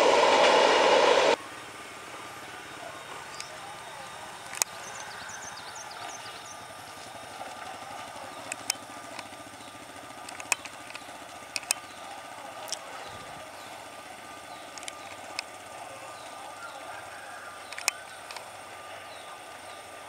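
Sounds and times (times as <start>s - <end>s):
distant train rumble: 0.0s - 20.0s
sharp clicks: 4.4s - 4.8s, 8.3s - 9.4s, 10.1s - 13.0s, 14.7s - 15.6s, 17.6s - 18.5s.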